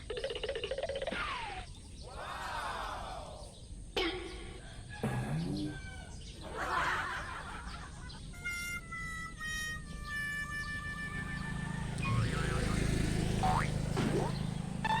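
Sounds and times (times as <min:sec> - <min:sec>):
held musical notes: 0:08.3 - 0:15.0
comic sound effects: 0:12.0 - 0:15.0.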